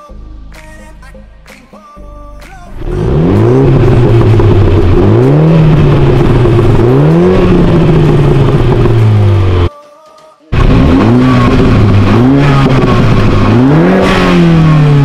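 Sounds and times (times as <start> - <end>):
car engine revving: 2.7 - 9.7, 10.6 - 15.0.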